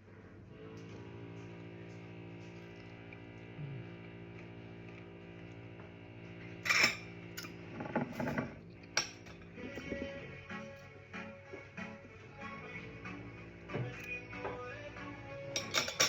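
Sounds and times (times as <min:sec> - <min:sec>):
cutlery clinking on crockery: 0:06.6 - 0:10.1, 0:15.6 - 0:16.0
background music: 0:09.4 - 0:16.0.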